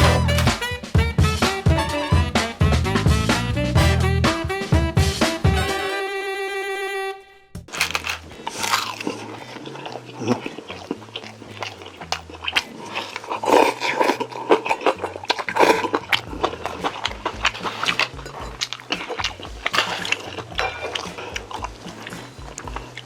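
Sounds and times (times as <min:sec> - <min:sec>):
soft background music with bass: 0:00.0 - 0:06.0, 0:07.6 - 0:23.0
jazzy intro music note: 0:00.0 - 0:07.4
crunchy chewing: 0:07.7 - 0:23.0.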